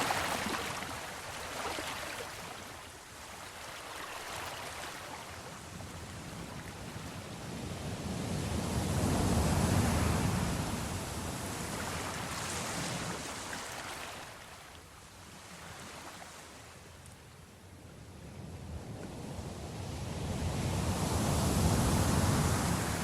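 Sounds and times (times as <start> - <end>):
ocean waves on shore: 0.0 - 23.0.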